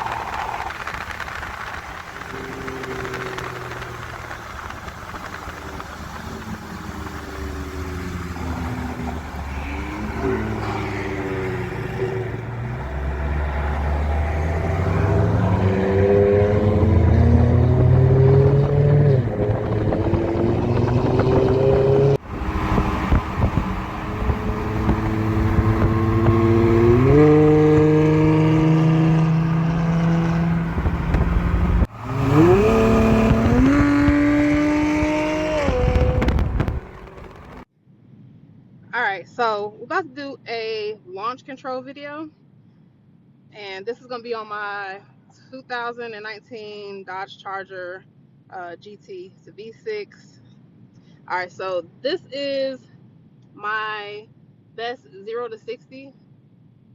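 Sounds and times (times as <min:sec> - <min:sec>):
car exhaust engine revving hard: 0:00.0 - 0:37.6.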